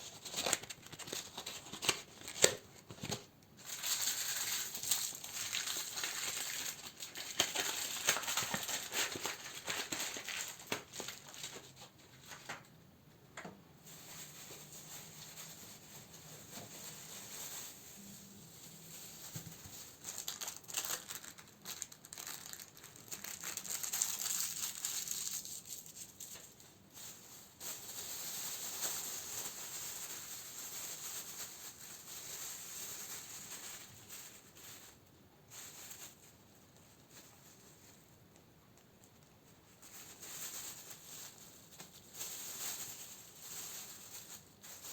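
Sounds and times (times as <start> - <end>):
candle packaging crinkling: 0.0 - 12.7, 13.8 - 44.9.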